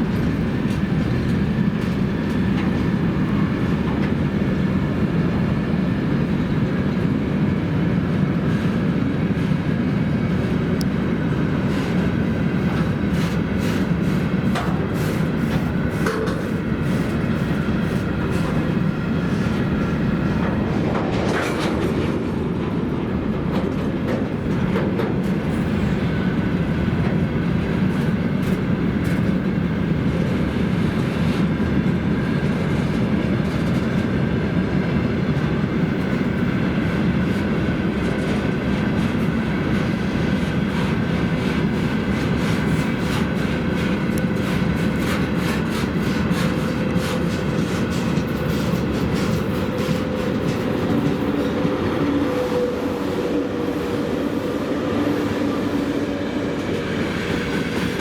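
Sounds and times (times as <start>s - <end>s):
train rumble: 0.0s - 58.0s
train wheels clacking: 8.4s - 31.5s, 35.4s - 58.0s.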